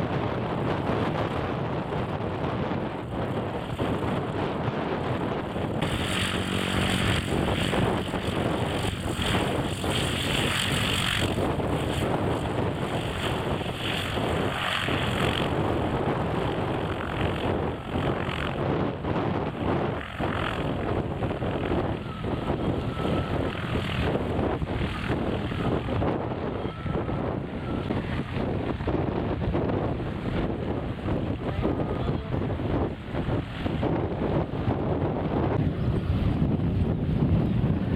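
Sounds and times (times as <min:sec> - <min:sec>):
propeller aircraft engine drone: 0:00.0 - 0:37.9.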